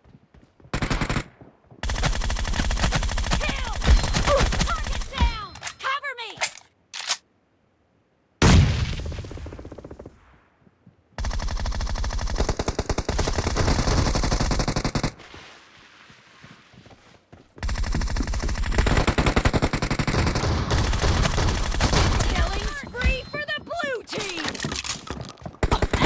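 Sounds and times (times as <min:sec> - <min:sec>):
video game automatic gunfire: 0:00.7 - 0:05.3, 0:11.2 - 0:15.1, 0:17.6 - 0:23.3.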